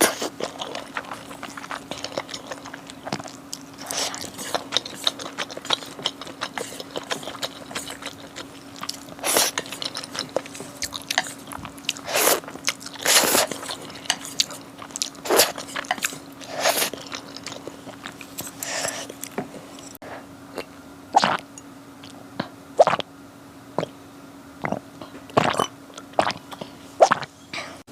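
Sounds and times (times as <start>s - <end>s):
biting and chewing: 0.0s - 20.0s
faint steady hum: 0.0s - 27.9s.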